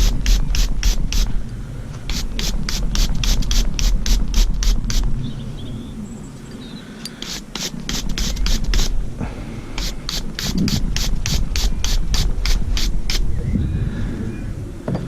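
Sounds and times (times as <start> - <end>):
hand tool scraping metal thread: 0.0 - 1.4, 2.1 - 5.1, 7.1 - 9.0, 9.8 - 13.3.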